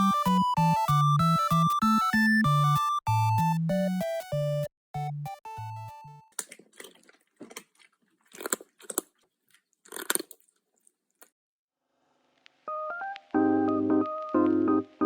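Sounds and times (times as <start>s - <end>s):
background music: 0.0s - 6.3s, 12.7s - 15.0s
crunching crinkling noises: 6.3s - 11.3s.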